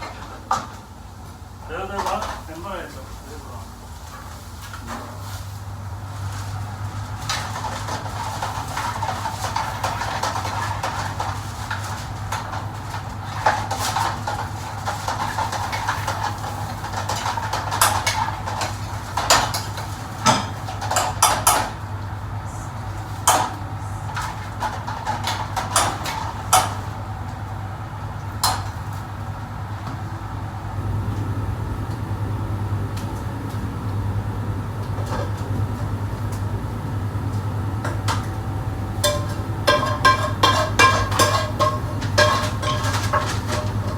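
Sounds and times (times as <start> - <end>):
kitchen machinery hum: 0.0 - 43.9
pots and dishes clattering: 1.7 - 2.5, 7.0 - 22.0, 22.9 - 27.1, 28.4 - 29.0, 35.0 - 35.6, 37.9 - 43.9.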